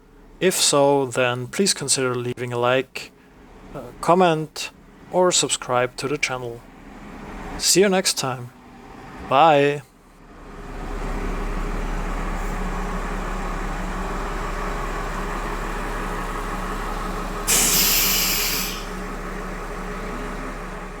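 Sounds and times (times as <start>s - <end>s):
diesel train humming: 0.0s - 21.0s
air brake hiss: 17.5s - 19.0s.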